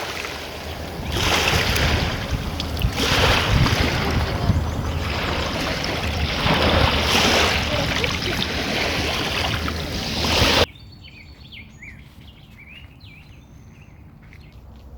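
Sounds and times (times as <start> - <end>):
loud rushing water: 0.0 - 10.7
small birds chirping: 0.3 - 14.6.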